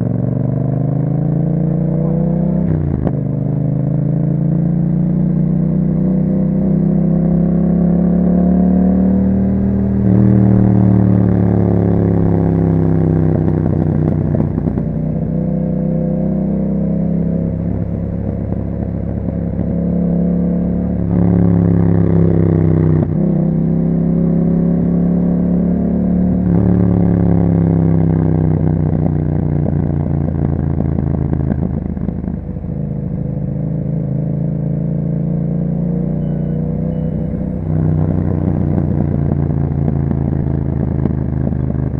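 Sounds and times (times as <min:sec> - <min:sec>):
motorcycle engine revving: 0:00.0 - 0:41.9
exhaust crackle: 0:28.5 - 0:34.2, 0:37.2 - 0:41.9.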